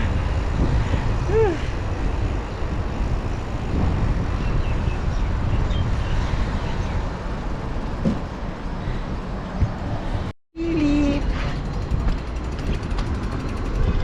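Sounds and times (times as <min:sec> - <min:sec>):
wind rushing over microphone: 0:00.0 - 0:10.3
road traffic noise: 0:00.0 - 0:14.0.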